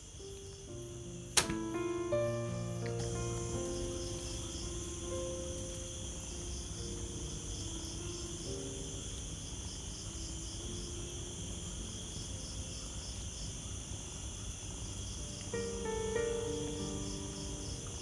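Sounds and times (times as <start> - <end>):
crickets chirping: 0.0 - 18.0
soft slow background music: 0.0 - 18.0.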